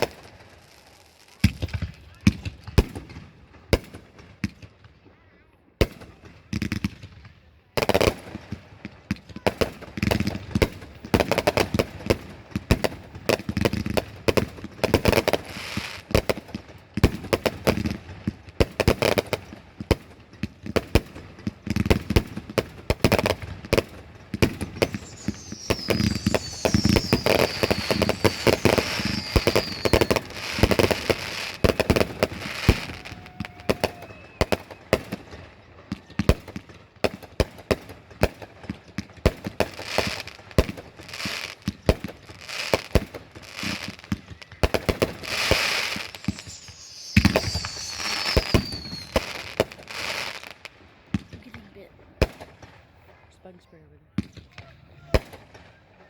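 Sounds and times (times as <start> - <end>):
fireworks cracks and bangs: 0.0 - 5.1, 5.8 - 53.2
firework whistle falling in pitch: 24.8 - 35.0, 45.2 - 50.2.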